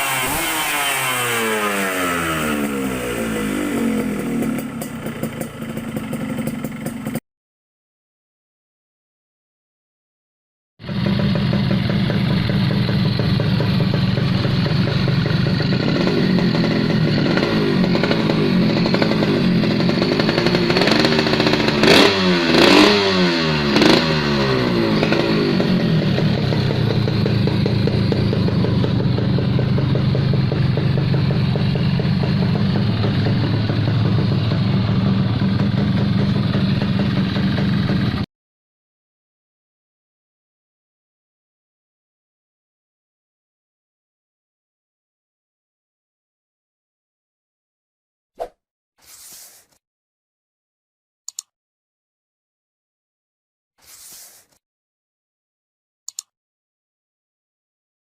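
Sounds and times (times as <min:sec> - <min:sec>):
motorcycle engine revving: 0:00.0 - 0:07.2, 0:10.8 - 0:38.3.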